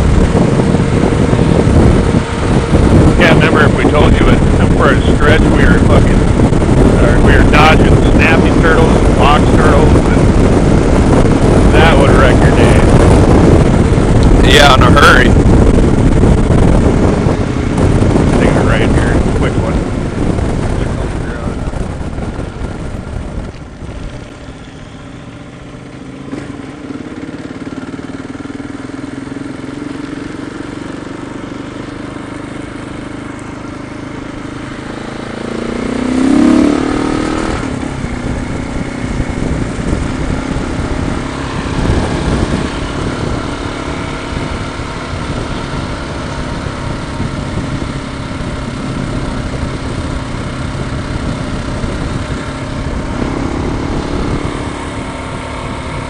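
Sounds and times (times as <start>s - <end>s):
motorcycle engine running: 0.0s - 56.0s
road and wind noise: 0.0s - 56.0s.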